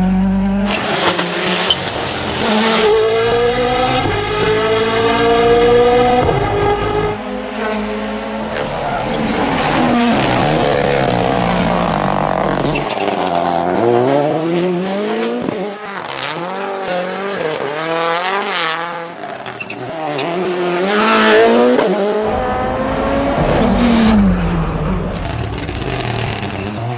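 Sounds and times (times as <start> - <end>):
rally car engines revving: 0.0 - 26.9
tyre noise: 25.0 - 26.9.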